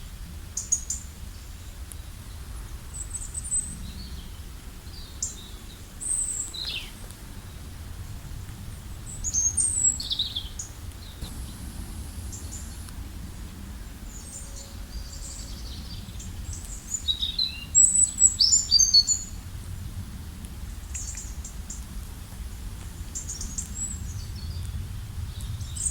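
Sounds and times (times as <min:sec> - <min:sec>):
low background rumble: 0:00.0 - 0:25.9
songbirds chirping: 0:00.0 - 0:25.9.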